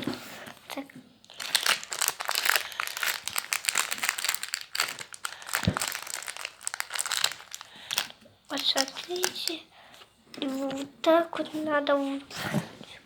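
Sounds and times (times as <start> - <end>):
crinkly material crackling: 0.0 - 9.7.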